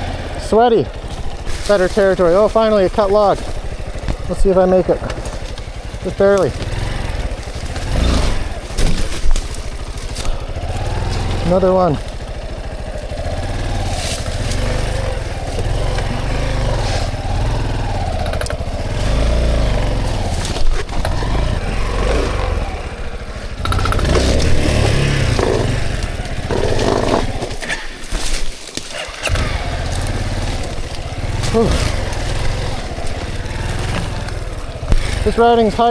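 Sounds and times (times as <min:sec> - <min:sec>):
dirt bike engine revving: 0:00.0 - 0:35.9
sharp knocks from bike: 0:01.0 - 0:11.4, 0:23.6 - 0:35.4.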